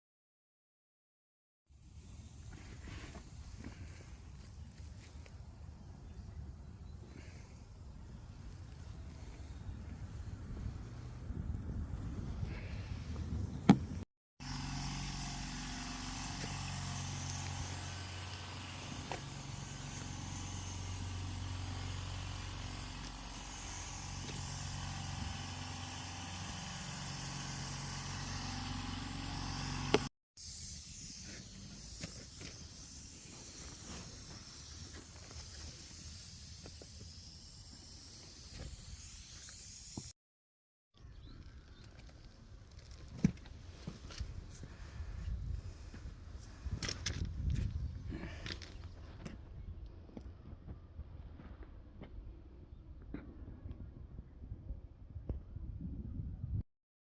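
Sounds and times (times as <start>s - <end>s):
air tool hissing: 1.8s - 6.2s, 7.0s - 11.1s, 14.4s - 40.2s.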